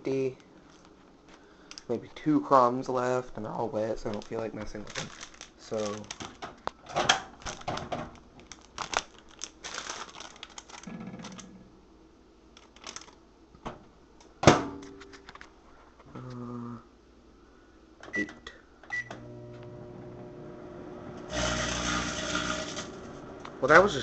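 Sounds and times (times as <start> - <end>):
plastic chip bag crinkling: 0.5 - 2.3, 3.2 - 11.6, 12.5 - 13.2
microwave oven hum: 18.1 - 24.0.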